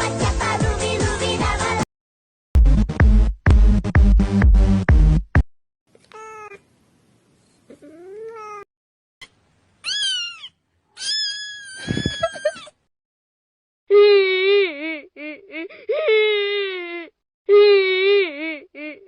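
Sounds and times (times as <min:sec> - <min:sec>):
loud music beat: 0:02.6 - 0:05.4
cat meowing: 0:09.8 - 0:12.7.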